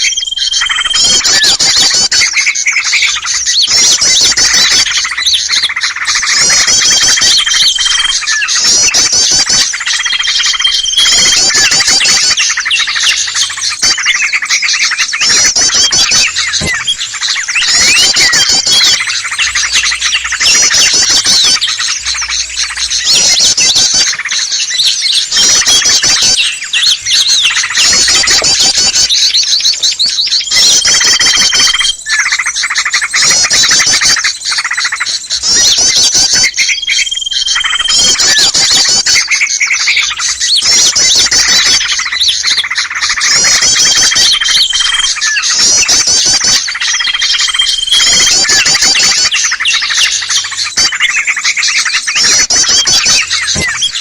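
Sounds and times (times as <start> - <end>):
songbirds chattering chorus: 0.0 - 54.0.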